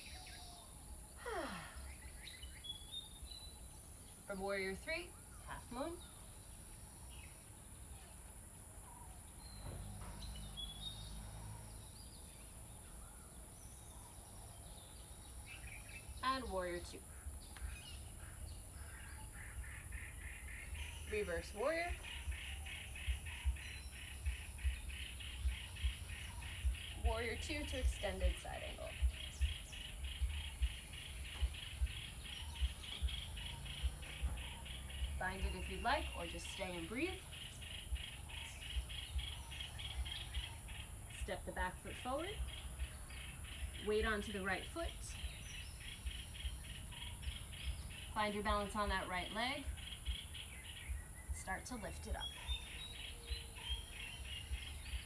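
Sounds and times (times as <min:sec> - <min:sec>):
faint bird chirps: 0:00.0 - 0:55.0
low steady rumble: 0:14.7 - 0:55.0
low thumps: 0:21.6 - 0:37.2.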